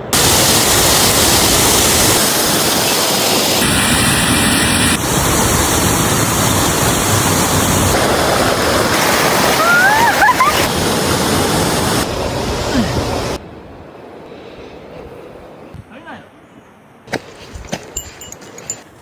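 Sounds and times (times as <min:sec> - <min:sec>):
rush of falling water: 0:00.0 - 0:13.4.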